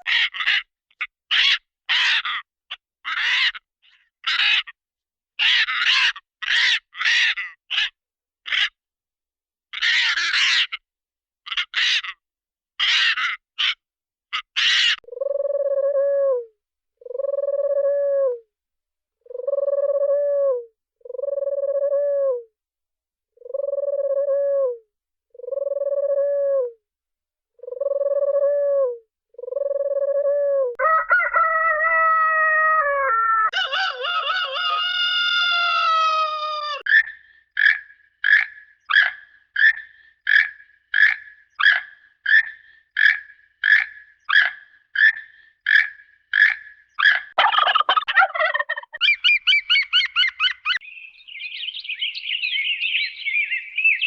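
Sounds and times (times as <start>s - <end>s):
warbling cartoon call: 47.4s - 50.8s.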